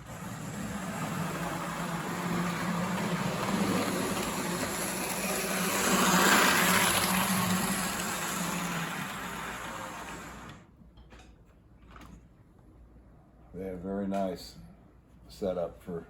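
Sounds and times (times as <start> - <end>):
electric motor hum: 0.0 - 10.6
model train wheel rumble: 0.0 - 10.6.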